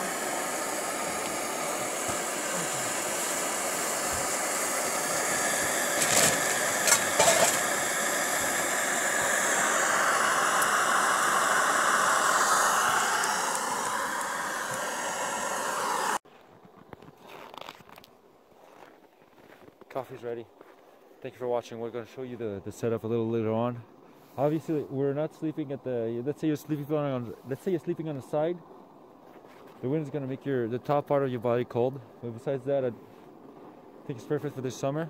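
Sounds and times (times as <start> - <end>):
gas stove burner hissing: 0.0 - 16.2.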